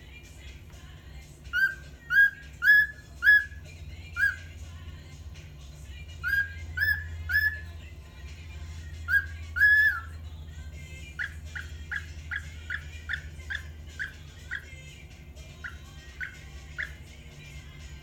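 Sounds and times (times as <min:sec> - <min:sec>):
steady low hum: 0:00.0 - 0:18.0
bird chirping: 0:01.4 - 0:04.8, 0:05.9 - 0:18.0
cockatiel whistling: 0:01.5 - 0:04.6, 0:06.1 - 0:07.8, 0:09.0 - 0:10.2, 0:11.1 - 0:17.2.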